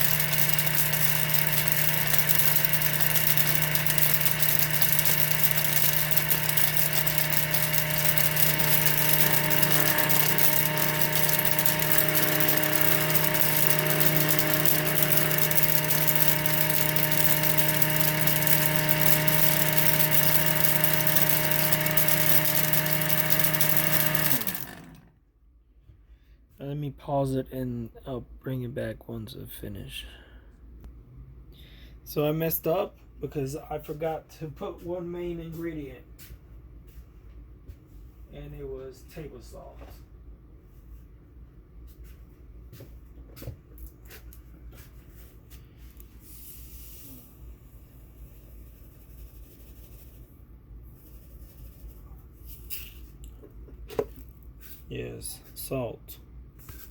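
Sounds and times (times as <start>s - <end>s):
blender motor running: 0.0s - 25.1s.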